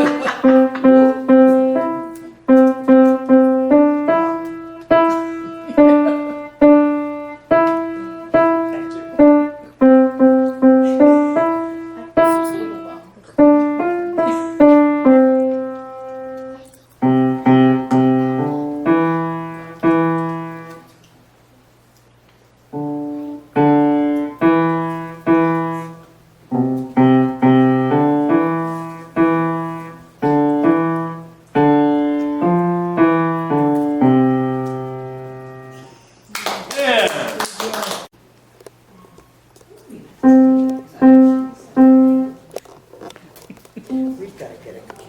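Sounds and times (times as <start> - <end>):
child playing piano: 0.0 - 20.9, 22.7 - 36.0, 40.2 - 42.5, 43.9 - 44.3.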